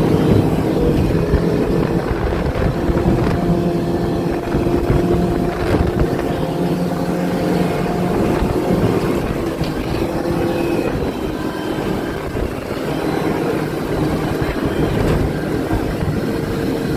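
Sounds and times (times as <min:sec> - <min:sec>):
outboard motors running: 0:00.0 - 0:16.9
wind on microphone: 0:00.0 - 0:16.9.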